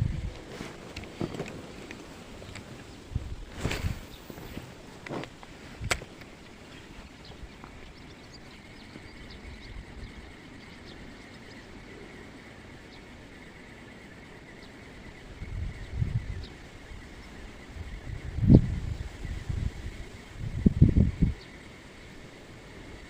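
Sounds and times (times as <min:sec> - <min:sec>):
wind and water rumble: 0:00.0 - 0:23.0
high chirping calls: 0:06.2 - 0:21.6.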